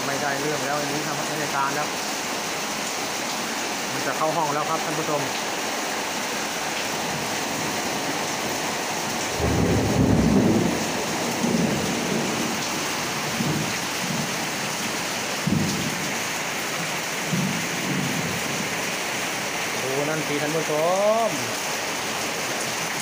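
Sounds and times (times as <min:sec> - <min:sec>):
heavy rain on standing water: 0:00.0 - 0:23.0
thunder rumble: 0:09.3 - 0:12.6.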